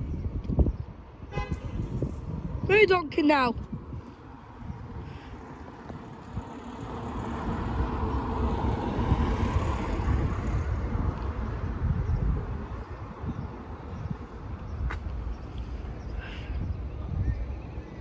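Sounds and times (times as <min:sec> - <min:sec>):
vehicle passing by: 0:04.2 - 0:13.2.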